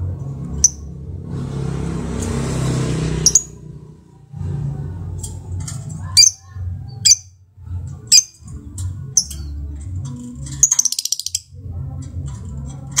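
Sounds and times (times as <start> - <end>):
lovebird chattering trill: 6.2 - 7.3, 10.6 - 11.5.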